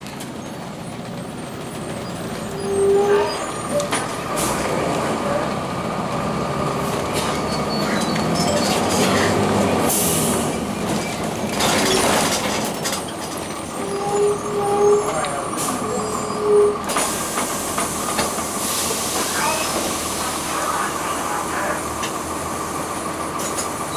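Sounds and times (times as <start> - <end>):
diesel bus engine running: 0.0 - 23.9
short squeals: 2.0 - 4.1, 7.2 - 9.5, 13.6 - 16.9
air brake hiss: 16.9 - 20.5.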